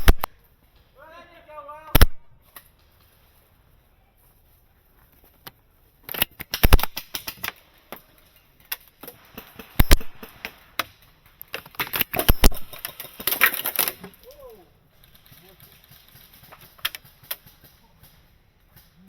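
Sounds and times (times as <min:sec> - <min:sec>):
airsoft guns firing: 0:00.0 - 0:00.4, 0:01.9 - 0:02.8, 0:06.1 - 0:07.9, 0:09.1 - 0:13.9, 0:15.0 - 0:19.0.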